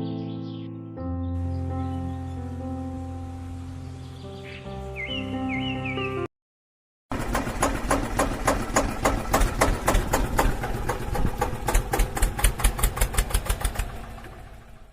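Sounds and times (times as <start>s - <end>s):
rapid regular knocking: 7.1s - 13.9s.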